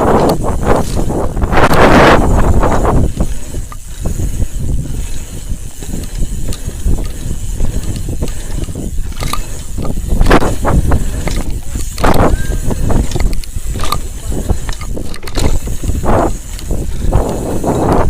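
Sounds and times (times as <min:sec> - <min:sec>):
tyres rolling over dirt: 0:00.0 - 0:17.9
bike parts clicking: 0:00.0 - 0:18.0
wind rumble: 0:00.0 - 0:18.0.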